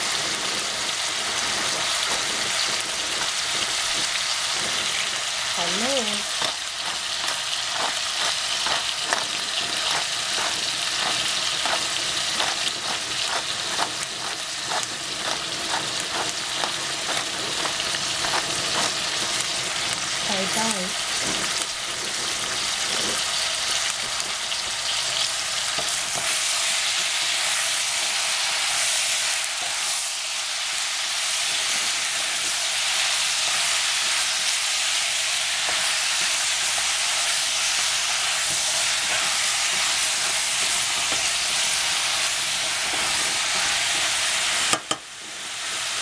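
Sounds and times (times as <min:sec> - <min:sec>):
vegetables sizzling in a pan: 0:00.0 - 0:46.0
wooden spatula stirring: 0:06.2 - 0:19.6, 0:35.5 - 0:44.1.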